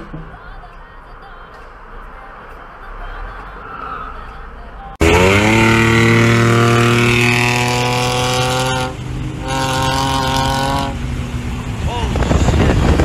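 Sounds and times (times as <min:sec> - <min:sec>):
car engine revving high: 0:05.0 - 0:13.0.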